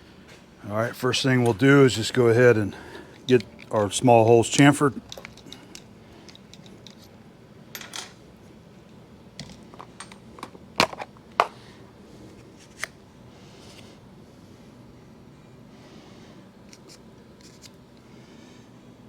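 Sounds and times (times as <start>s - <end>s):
metal tools clinking and knocking: 4.4s - 7.2s, 7.8s - 8.2s.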